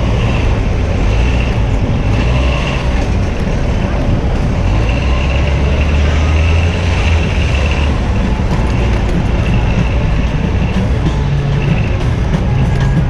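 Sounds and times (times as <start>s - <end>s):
city street traffic: 0.0s - 13.0s
large vehicle engine running: 0.0s - 13.0s.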